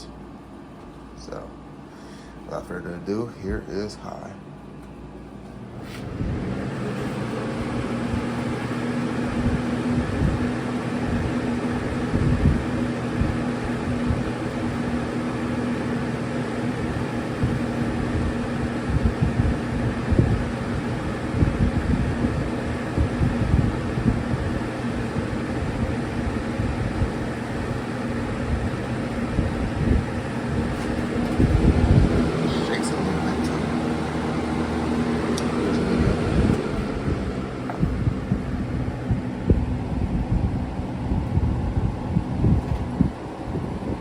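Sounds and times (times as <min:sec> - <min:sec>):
box fan running: 0:00.0 - 0:44.0
wind gusts on microphone: 0:29.3 - 0:32.8, 0:35.8 - 0:44.0.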